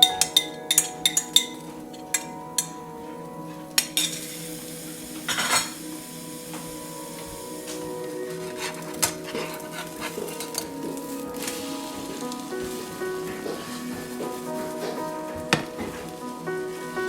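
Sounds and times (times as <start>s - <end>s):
spoon clinking in a pot: 3.8s - 4.4s.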